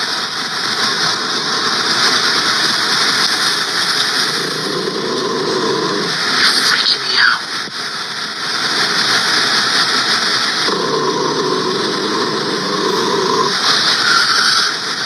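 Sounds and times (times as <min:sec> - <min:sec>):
robot vacuum running: 0:03.6 - 0:06.6, 0:10.7 - 0:15.0.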